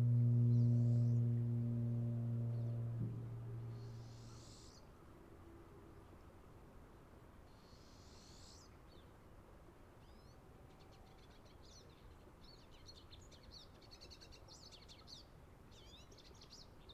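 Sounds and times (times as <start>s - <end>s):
low background rumble: 0.0s - 4.6s.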